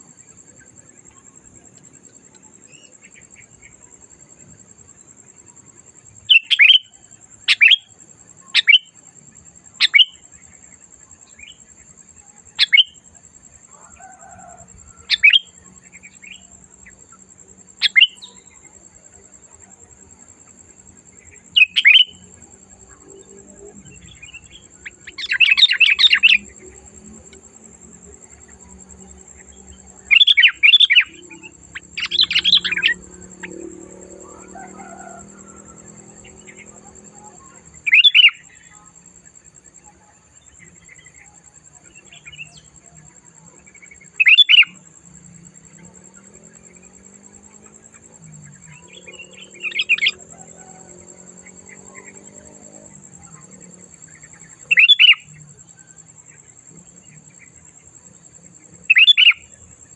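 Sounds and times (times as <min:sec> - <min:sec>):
bird rapid chattering song: 0:09.8 - 0:10.2, 0:12.6 - 0:13.0, 0:17.8 - 0:18.6, 0:24.0 - 0:26.7, 0:30.1 - 0:33.5, 0:36.2 - 0:38.7, 0:48.4 - 0:50.2, 0:53.3 - 0:55.4, 0:58.9 - 0:59.5.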